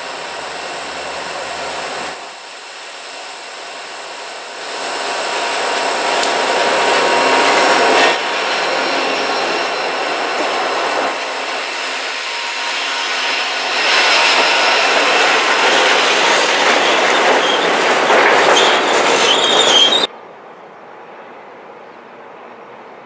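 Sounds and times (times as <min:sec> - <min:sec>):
diesel locomotive passing: 0:00.0 - 0:23.0
train wheels squealing and clattering: 0:04.7 - 0:20.1.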